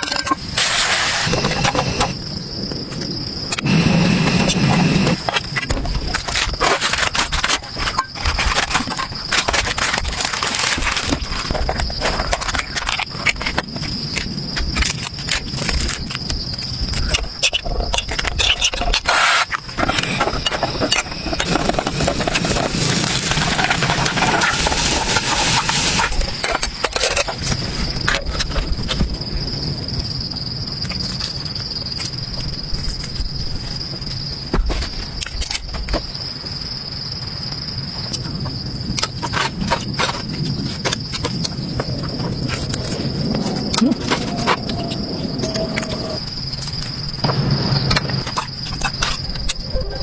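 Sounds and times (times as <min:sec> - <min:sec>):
insects chirring: 0:00.0 - 0:50.0
broad hiss: 0:00.5 - 0:02.2, 0:03.6 - 0:05.3, 0:19.1 - 0:26.3.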